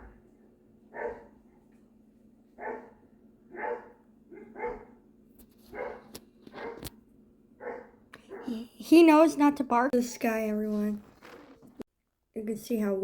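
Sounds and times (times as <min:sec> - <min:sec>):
dog barking: 0:00.9 - 0:01.4, 0:02.6 - 0:05.0, 0:05.7 - 0:06.9, 0:07.6 - 0:08.6.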